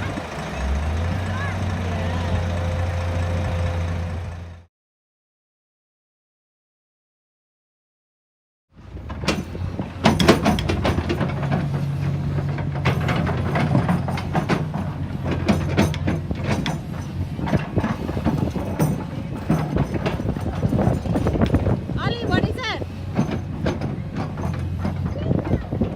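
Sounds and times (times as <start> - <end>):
heavy vehicle engine running: 0.0 - 4.7, 8.8 - 25.9
knocks clanks and rattles: 8.8 - 25.9.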